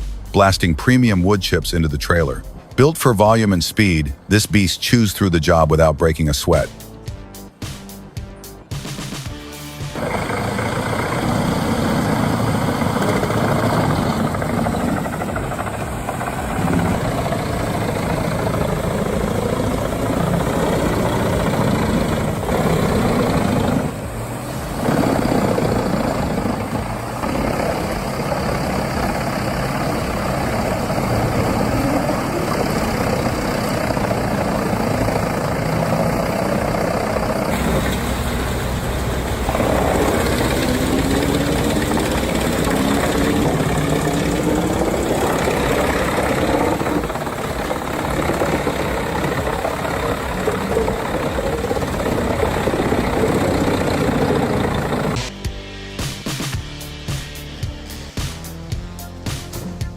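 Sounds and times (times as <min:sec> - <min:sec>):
heavy machine engine running: 0:08.8 - 0:55.4.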